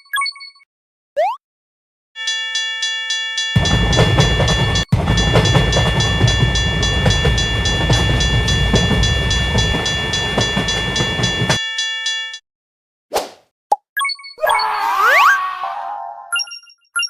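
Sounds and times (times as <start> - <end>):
crossing warning bell ringing: 2.2 - 12.4
train wheels clattering on track: 3.6 - 11.6.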